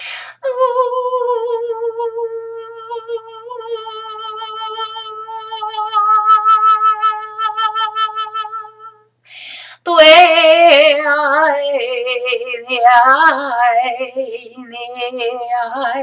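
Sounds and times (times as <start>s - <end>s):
woman breathing in: 0.0s - 0.4s, 9.2s - 9.8s
woman singing wordless notes: 0.0s - 9.1s, 9.8s - 16.0s.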